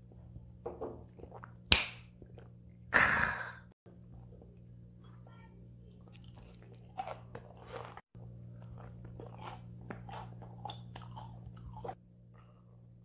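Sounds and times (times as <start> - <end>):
low steady hum: 0.0 - 13.0
crunchy chewing: 5.9 - 12.5.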